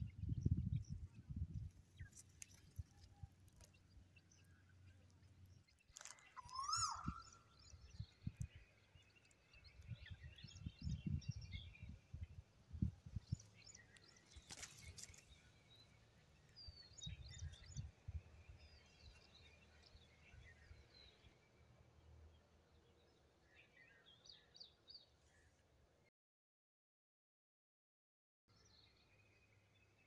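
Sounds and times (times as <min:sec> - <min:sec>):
wind buffeting microphone: 0:00.0 - 0:02.1, 0:09.8 - 0:13.5
small birds chirping: 0:00.0 - 0:25.5.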